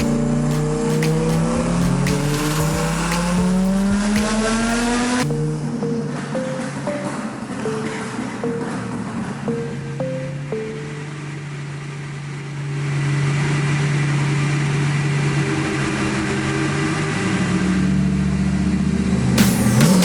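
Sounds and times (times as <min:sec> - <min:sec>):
car engine running: 0:00.0 - 0:05.6.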